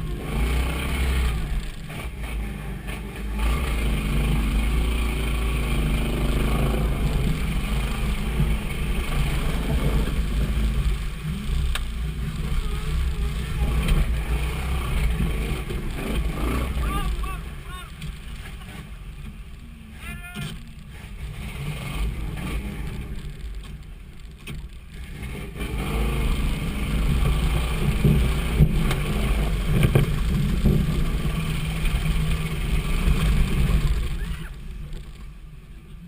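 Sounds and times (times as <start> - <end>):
truck engine rumble: 0.0 - 36.0
faint voice: 16.8 - 18.0, 19.9 - 20.5.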